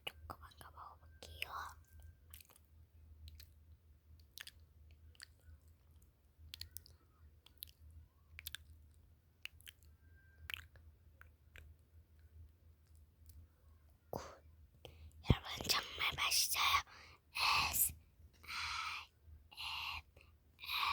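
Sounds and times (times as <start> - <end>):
faint chewing: 0.0 - 13.5
low steady hum: 0.0 - 20.9.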